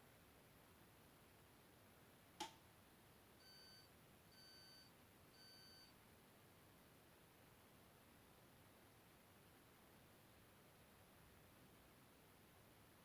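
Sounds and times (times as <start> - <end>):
washing machine beeps: 3.4 - 5.9.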